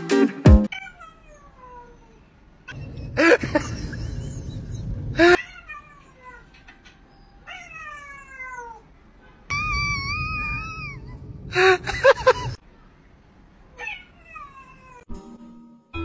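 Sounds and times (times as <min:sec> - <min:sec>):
cat meowing: 0:00.7 - 0:03.0, 0:05.3 - 0:08.9, 0:09.5 - 0:11.4, 0:13.7 - 0:15.1.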